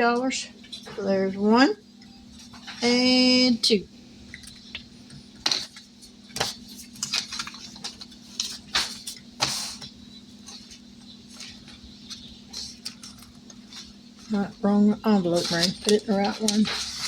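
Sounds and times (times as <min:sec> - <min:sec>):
paper money rustling: 0:05.4 - 0:17.0.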